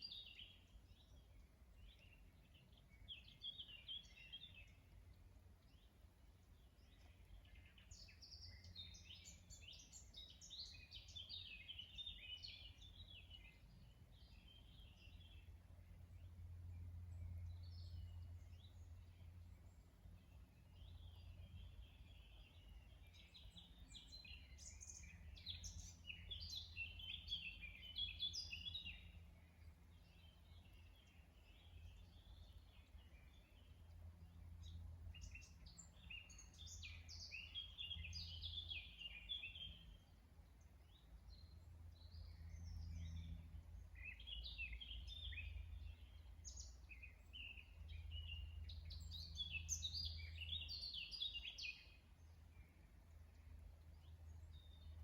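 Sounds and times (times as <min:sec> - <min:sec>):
songbirds chirping and twittering: 0:00.0 - 0:55.0
faint low rumble: 0:12.2 - 0:55.0.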